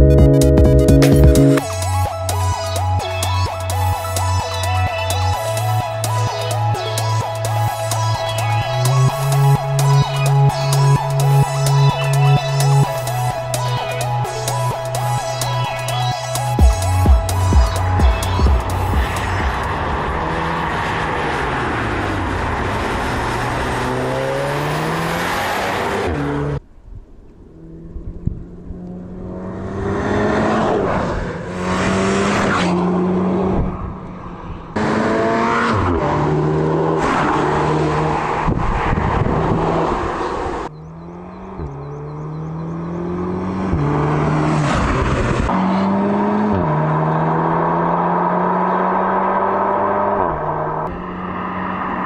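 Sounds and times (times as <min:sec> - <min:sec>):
car engine accelerating hard: 0:16.6 - 0:26.6, 0:27.4 - 0:52.0.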